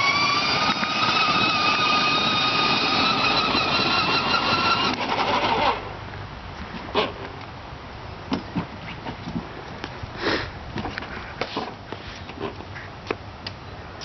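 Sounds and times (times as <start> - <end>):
motor whine rising in pitch: 0.0 - 5.8.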